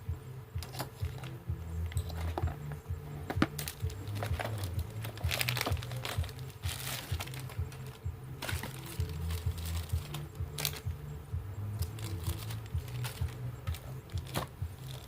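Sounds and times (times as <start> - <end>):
background music with bass line: 0.0 - 15.0
clicks and rustles of handling: 0.6 - 11.0, 11.8 - 15.0.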